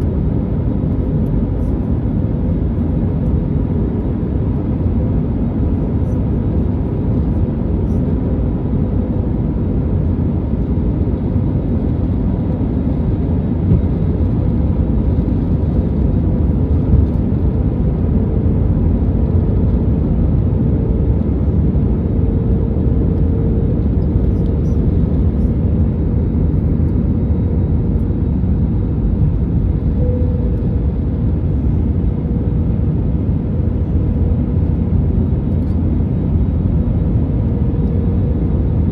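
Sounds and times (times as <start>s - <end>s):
low drone of jet engines: 0.0s - 38.9s
faint steady hum: 27.9s - 34.2s.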